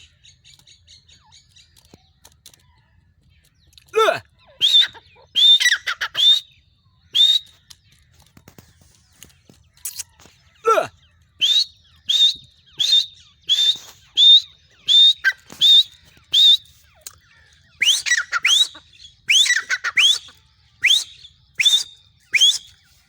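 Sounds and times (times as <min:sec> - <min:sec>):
grey francolin shrill whistled calls: 0:04.5 - 0:07.6, 0:17.7 - 0:22.8.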